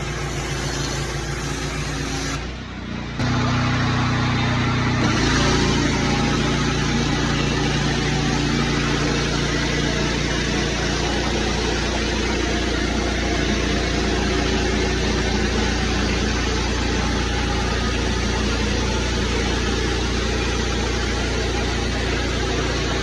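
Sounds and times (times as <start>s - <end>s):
gas engine running: 0.0s - 23.0s
pressure washer hiss: 5.0s - 18.6s.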